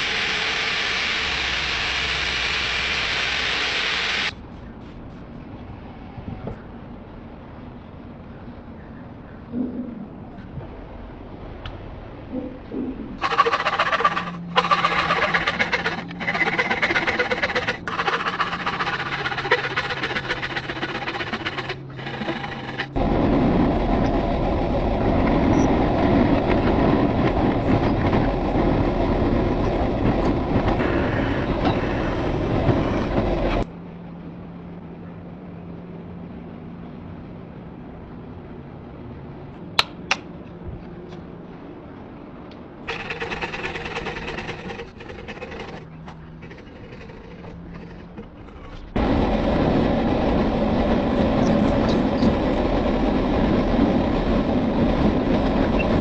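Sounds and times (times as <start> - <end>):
grinder on metal: 0.0 - 4.3, 13.2 - 23.0.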